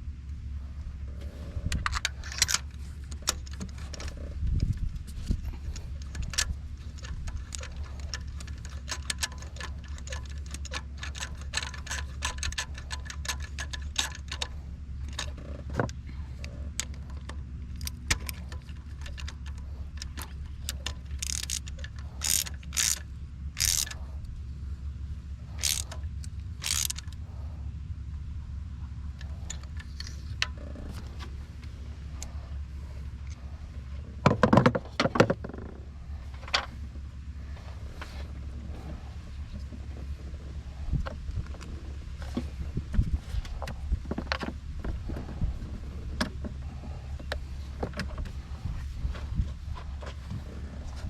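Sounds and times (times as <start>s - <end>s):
steady low hum: 0.0s - 51.0s
ratchet wrench clicking: 1.8s - 24.3s, 25.5s - 27.2s
metal tools clinking: 5.2s - 15.8s, 16.8s - 23.0s, 25.5s - 27.2s.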